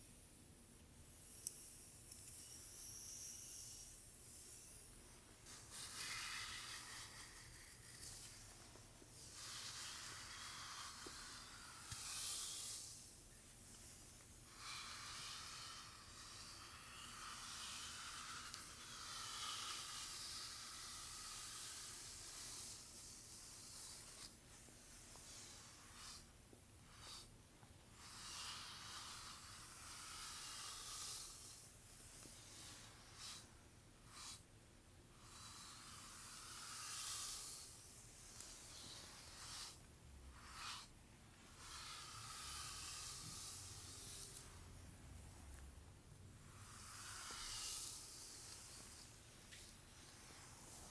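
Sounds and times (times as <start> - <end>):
brush drawn through hair: 5.4 - 13.1, 35.4 - 40.9, 41.5 - 45.7, 46.4 - 50.9.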